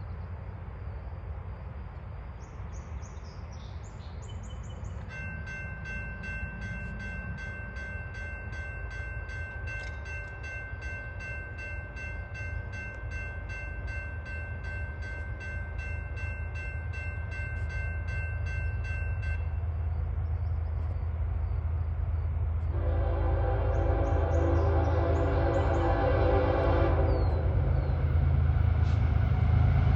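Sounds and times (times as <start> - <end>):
freight train rumble: 0.0 - 29.9
railroad crossing bell ringing: 4.8 - 20.2.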